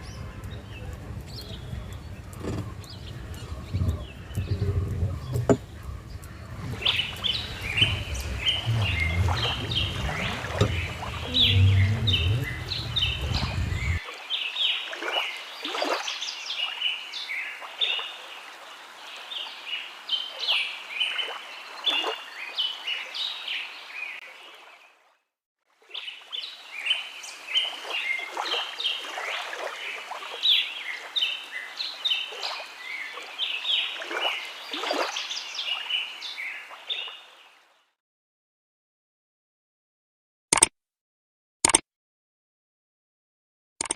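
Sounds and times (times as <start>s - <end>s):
low rumble: 0.0s - 14.0s
flock of birds chirping: 0.0s - 18.3s.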